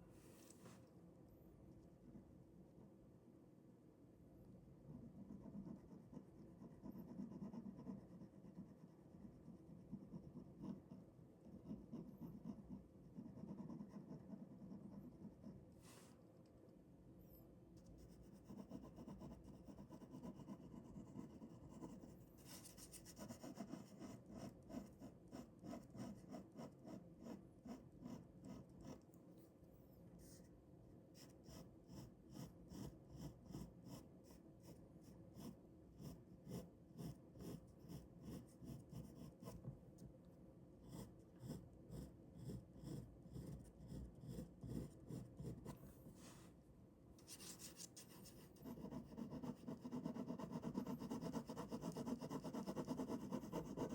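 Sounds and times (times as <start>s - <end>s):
ballpoint pen scratching paper: 5.0s - 15.6s, 18.0s - 29.0s, 31.2s - 39.6s, 40.8s - 45.8s, 47.2s - 53.9s.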